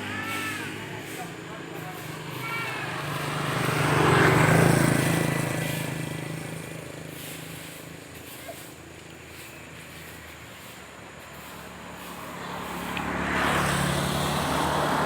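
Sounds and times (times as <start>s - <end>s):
truck engine driving past: 11.1s - 15.0s.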